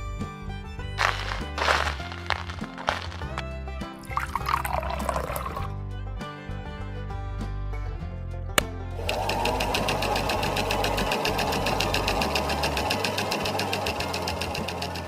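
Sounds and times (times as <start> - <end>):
small motor mechanism clattering: 9.0 - 15.0.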